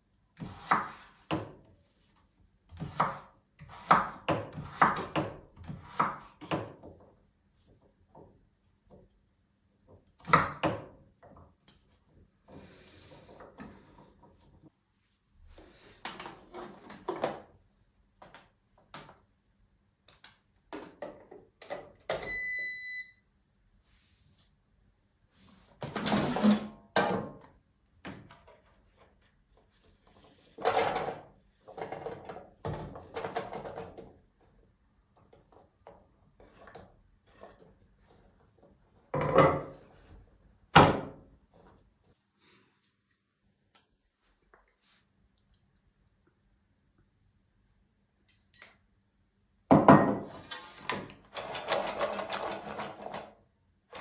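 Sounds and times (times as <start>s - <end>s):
electronic appliance beep: 22.1s - 23.3s.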